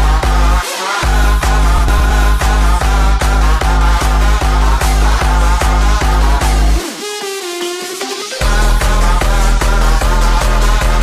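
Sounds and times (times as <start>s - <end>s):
distorted bass kick: 0.0s - 6.8s.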